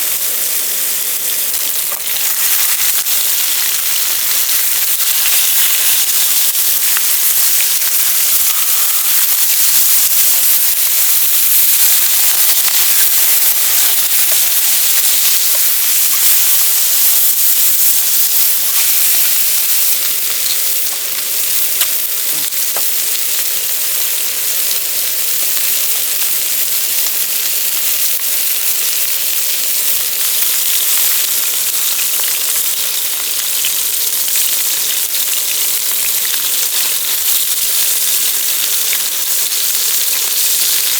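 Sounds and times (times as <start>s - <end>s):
food sizzling in a pan: 0.0s - 40.9s.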